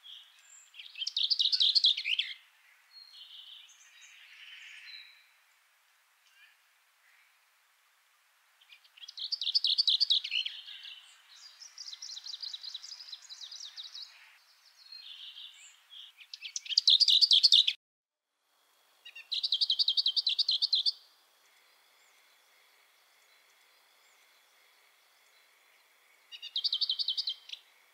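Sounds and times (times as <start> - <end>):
songbird singing: 0.0 - 7.8, 8.5 - 17.8, 18.9 - 27.9
faint steady high whine: 18.2 - 26.5.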